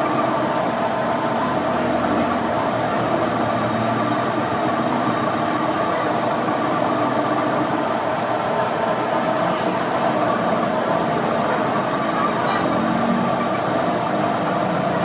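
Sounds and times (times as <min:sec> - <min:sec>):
machine humming: 0:01.3 - 0:07.4, 0:09.2 - 0:15.0.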